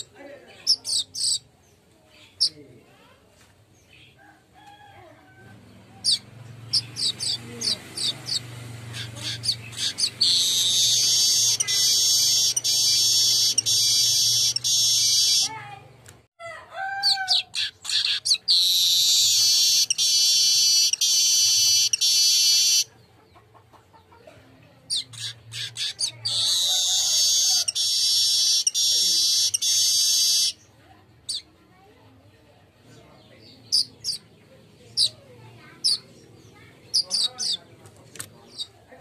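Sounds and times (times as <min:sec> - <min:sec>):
bird buzzy song: 0:00.0 - 0:02.6, 0:05.5 - 0:15.6, 0:17.1 - 0:23.5, 0:24.9 - 0:31.5, 0:32.9 - 0:37.7.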